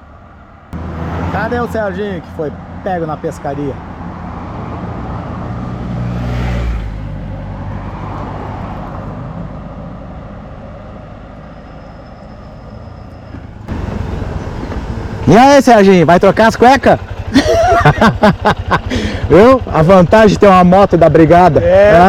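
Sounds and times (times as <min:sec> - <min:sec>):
vehicle engine passing: 0:00.0 - 0:17.4.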